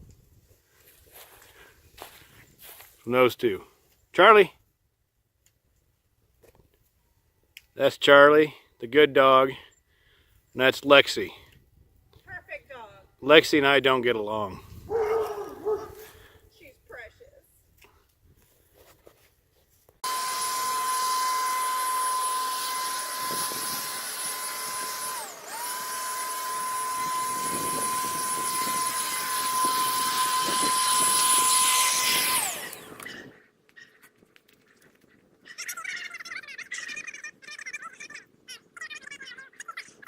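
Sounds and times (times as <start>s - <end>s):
leaf blower whining: 14.8s - 16.4s, 20.0s - 33.4s.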